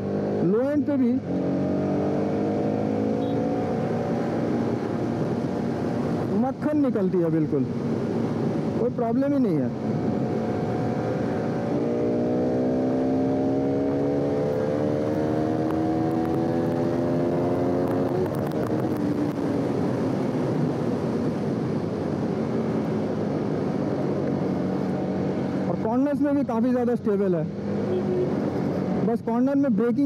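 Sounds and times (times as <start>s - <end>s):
motorcycle engine accelerating: 0.0s - 6.4s, 9.7s - 26.0s
wind rush: 1.2s - 25.8s.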